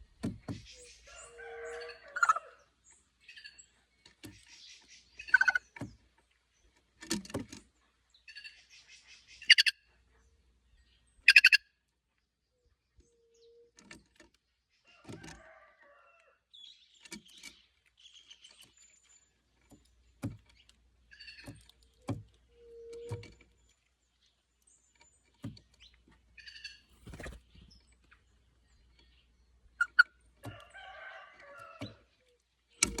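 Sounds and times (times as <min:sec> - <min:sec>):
jays chattering and whistling: 0:29.8 - 0:30.1
sharp bird clicks: 0:32.8 - 0:33.0.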